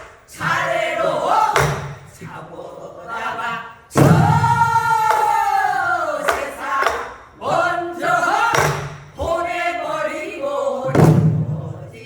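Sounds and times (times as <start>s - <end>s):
people singing folk song: 0.0s - 12.0s
barrel drum strikes: 1.5s - 2.2s, 4.0s - 5.6s, 6.2s - 7.3s, 8.5s - 9.4s, 10.9s - 11.8s.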